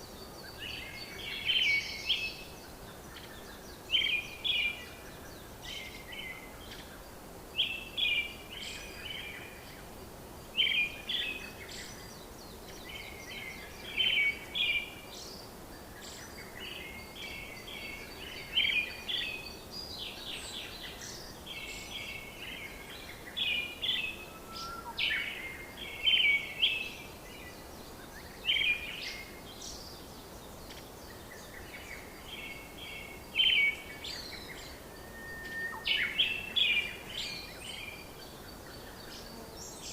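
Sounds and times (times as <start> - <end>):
background hiss: 0.0 - 39.9
bird chirping: 10.5 - 39.9.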